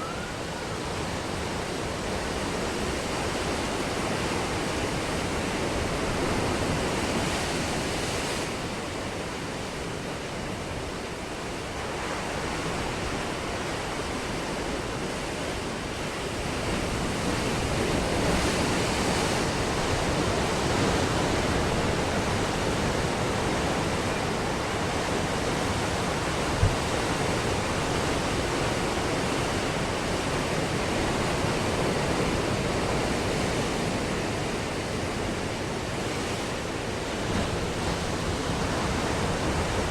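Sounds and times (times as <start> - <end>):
ocean waves breaking: 11.5 - 39.9.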